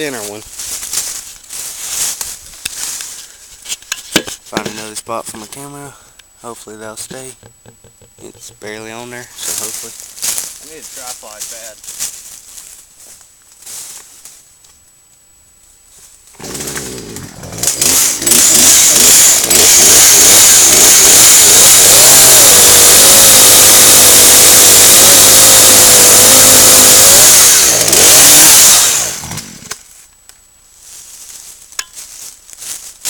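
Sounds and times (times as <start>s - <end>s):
chainsaw cutting a log: 16.4s - 29.8s.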